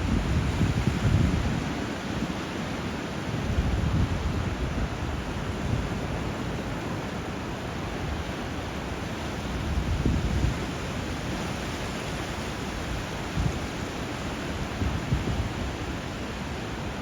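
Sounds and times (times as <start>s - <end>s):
surf and flowing water: 0.0s - 17.0s.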